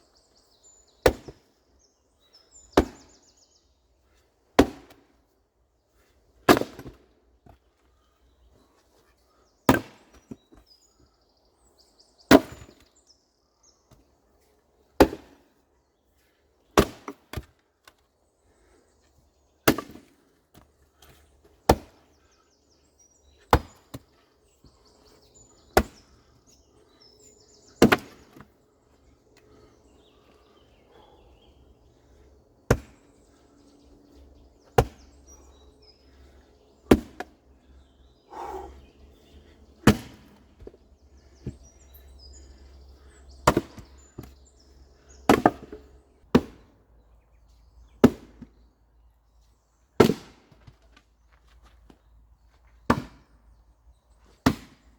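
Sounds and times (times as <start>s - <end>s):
axe splitting firewood: 1.0s - 1.5s, 2.8s - 3.1s, 4.6s - 5.1s, 6.4s - 7.0s, 9.7s - 10.4s, 12.3s - 12.8s, 15.0s - 15.5s, 16.7s - 18.0s, 19.6s - 22.2s, 23.4s - 24.1s, 25.8s - 26.1s, 27.8s - 28.6s, 32.7s - 33.0s, 34.7s - 35.4s, 36.2s - 37.4s, 39.8s - 40.8s, 43.4s - 44.4s, 45.3s - 46.7s, 48.0s - 48.5s, 50.0s - 51.0s, 52.8s - 53.4s, 54.4s - 54.9s.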